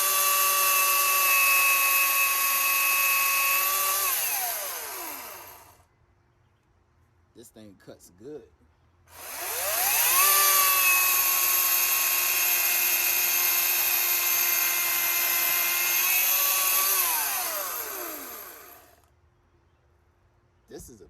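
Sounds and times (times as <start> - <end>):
electric chainsaw whining: 0.0 - 5.8, 9.1 - 19.1.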